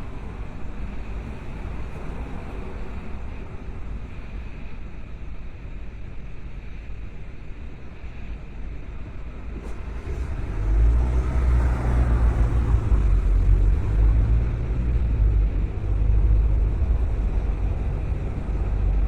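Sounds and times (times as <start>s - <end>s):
car road and engine noise: 0.0s - 19.0s
deep low rumble: 9.7s - 19.0s.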